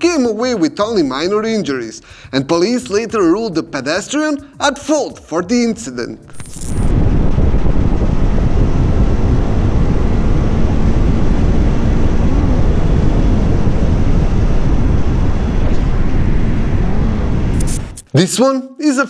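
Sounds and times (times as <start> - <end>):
road and wind noise: 6.3 - 18.0
motorcycle engine hum: 6.9 - 17.8.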